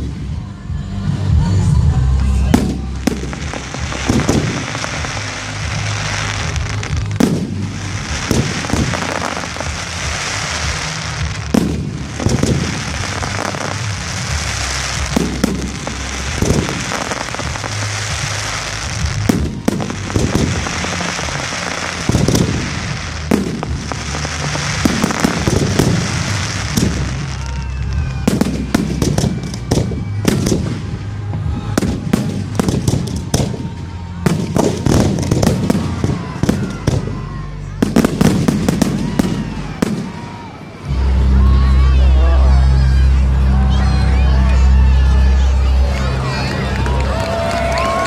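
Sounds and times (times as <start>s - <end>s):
fireworks crackling and fizzing: 0.0s - 42.1s, 42.7s - 48.0s
fireworks shells bursting: 2.7s - 27.5s.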